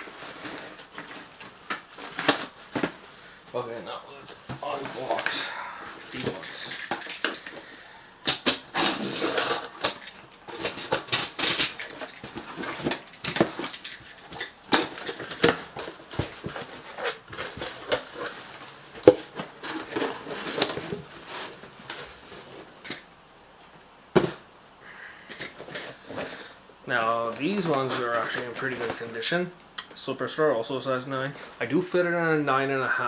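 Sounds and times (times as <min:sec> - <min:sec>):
cardboard box being handled: 0:04.3 - 0:05.4.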